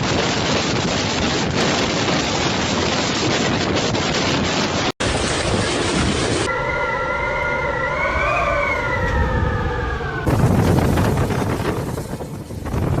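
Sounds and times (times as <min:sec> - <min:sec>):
steady rushing noise: 0:00.0 - 0:06.5, 0:09.3 - 0:13.0
storm wind roaring: 0:00.0 - 0:13.0
wailing tone: 0:06.5 - 0:10.6.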